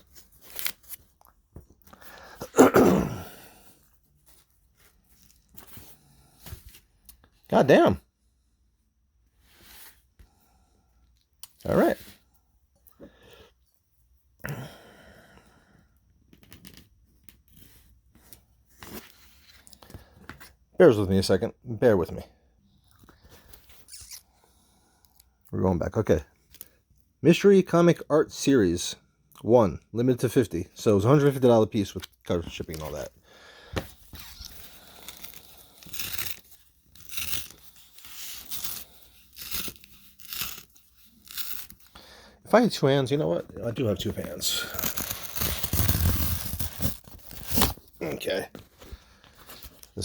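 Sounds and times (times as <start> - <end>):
packaging tearing: 0.4 - 1.3, 34.1 - 42.0, 43.8 - 48.1
packaging rustling and clicking: 44.1 - 48.0.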